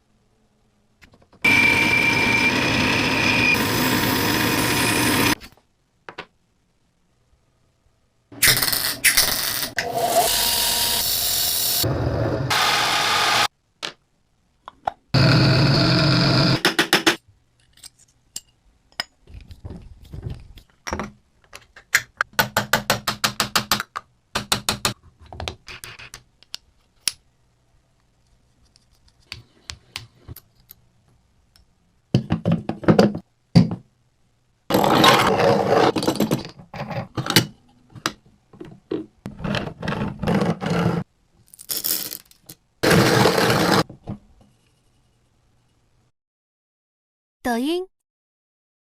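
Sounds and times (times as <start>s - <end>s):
coffee grinder motor: 15.2s - 16.6s.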